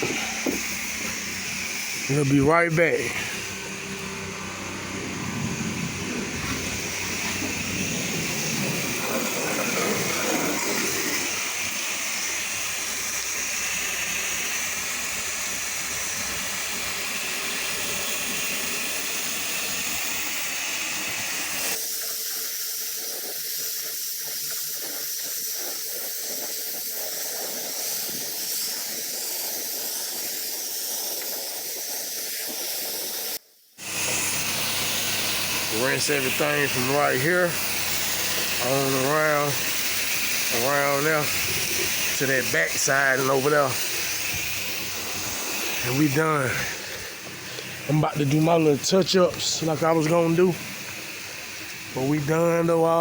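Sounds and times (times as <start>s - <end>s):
low rumble under spray: 0.0s - 21.7s, 33.9s - 53.0s
pressure washer spraying water: 0.0s - 53.0s.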